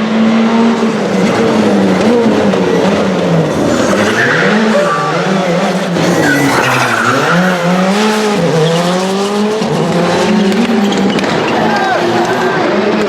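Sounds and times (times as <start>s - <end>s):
car engine revving: 0.0s - 13.0s
tyres squealing on tarmac: 2.7s - 11.9s.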